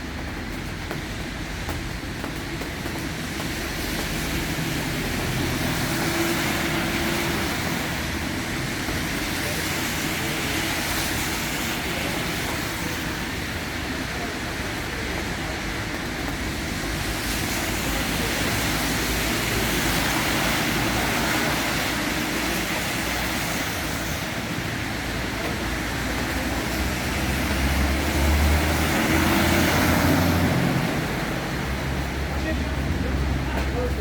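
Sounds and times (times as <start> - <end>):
tyres hissing on wet road: 0.0 - 34.0.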